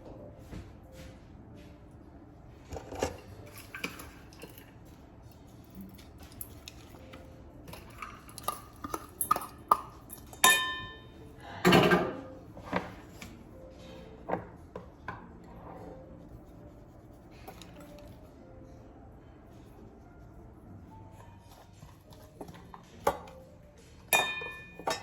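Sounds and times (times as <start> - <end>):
dishes and cutlery clinking: 2.7 - 16.0, 21.1 - 25.0
dishes clattering: 7.7 - 13.0, 24.1 - 25.0.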